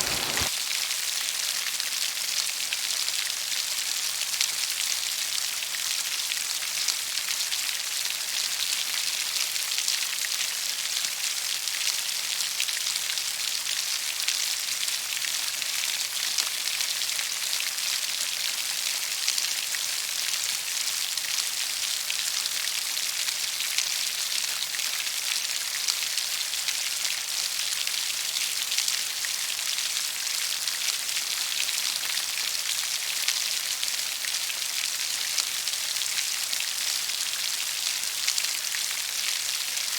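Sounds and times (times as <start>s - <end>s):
rain pattering on leaves: 0.0s - 0.8s.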